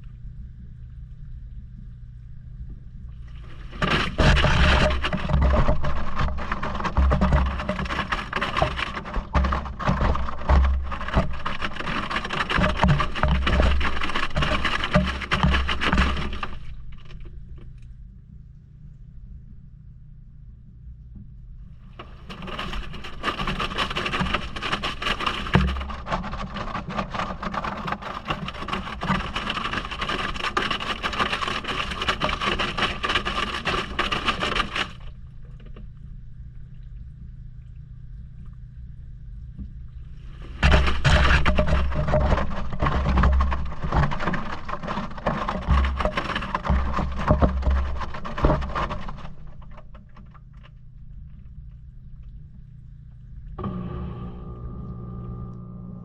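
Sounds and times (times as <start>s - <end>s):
water and laundry sloshing: 3.1s - 17.8s, 21.8s - 36.0s, 40.0s - 52.7s
washing machine motor hum: 53.4s - 56.0s.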